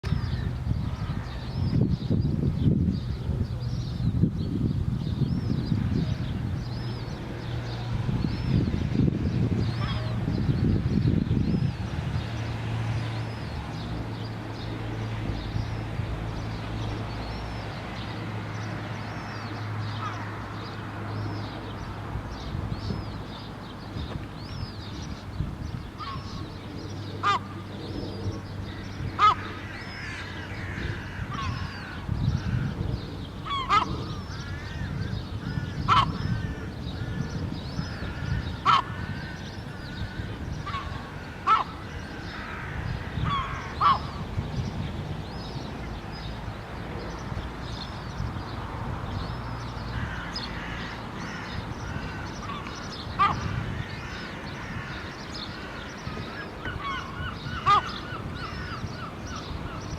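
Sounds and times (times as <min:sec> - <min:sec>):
gull calls: 0:09.7 - 0:10.2, 0:26.0 - 0:26.5, 0:27.2 - 0:27.7, 0:28.7 - 0:32.8, 0:33.4 - 0:44.2, 0:50.0 - 0:59.9.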